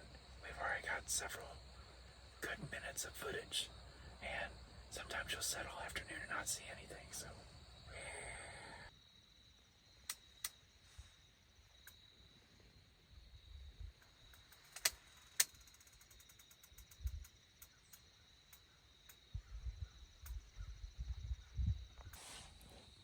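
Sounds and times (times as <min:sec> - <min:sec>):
faint evenly spaced ticks: 0:00.0 - 0:08.9, 0:09.5 - 0:12.7, 0:13.8 - 0:21.0
sharp clicks: 0:10.0 - 0:10.6, 0:14.0 - 0:19.3.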